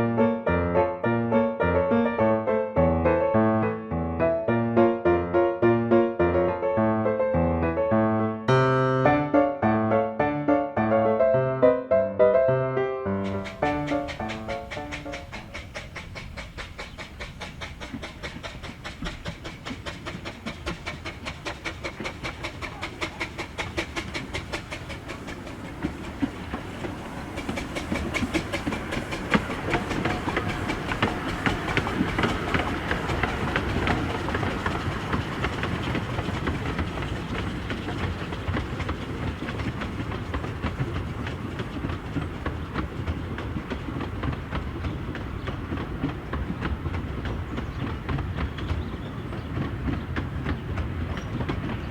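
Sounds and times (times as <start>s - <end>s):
train wheels clicking over rail joints: 13.2s - 51.9s.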